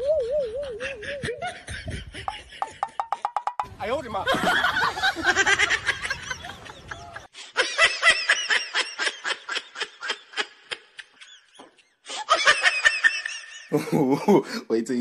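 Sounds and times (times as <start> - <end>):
high-pitched snickering laughs: 0.4 - 2.8.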